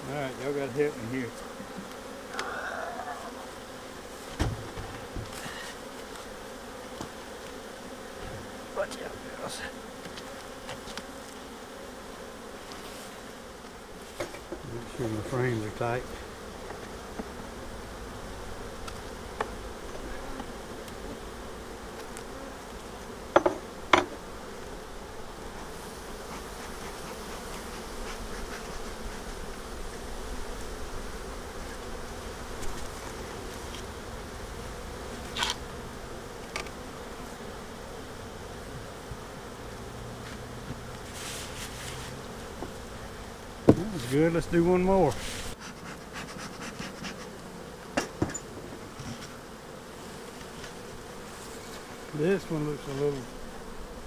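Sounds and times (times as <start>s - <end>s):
bees humming: 0.0s - 54.0s
wooden hive parts knocking: 4.3s - 5.4s.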